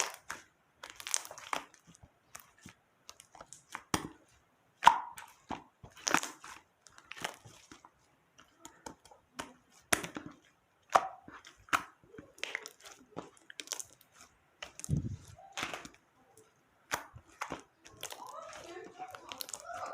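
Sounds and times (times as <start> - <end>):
slime squeezed clicking and popping: 0.0 - 2.5, 16.8 - 19.9.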